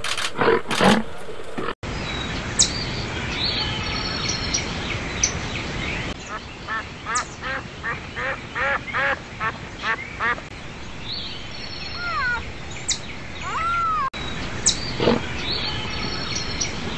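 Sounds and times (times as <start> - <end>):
birds chirping and whistling: 10.8 - 16.9
bird calling: 11.4 - 16.9.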